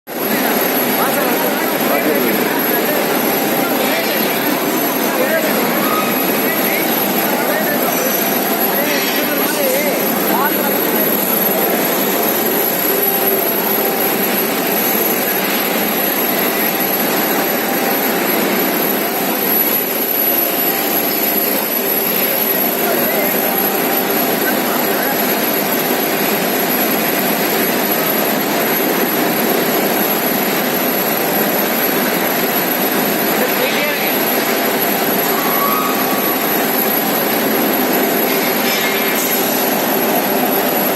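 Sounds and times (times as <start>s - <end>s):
roar of furnaces and machinery: 0.1s - 40.9s
thin high whine: 0.1s - 40.9s.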